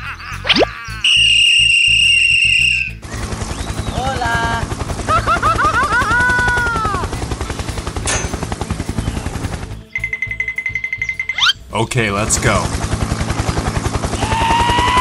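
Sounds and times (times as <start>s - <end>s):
shrill whistle blast: 1.0s - 3.0s
helicopter rotor chopping: 1.3s - 15.0s
squeaky cartoon voices chattering: 11.3s - 11.6s.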